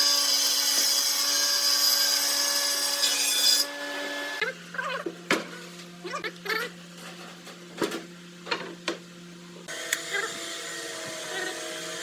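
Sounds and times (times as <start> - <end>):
small motor humming: 9.6 - 12.0.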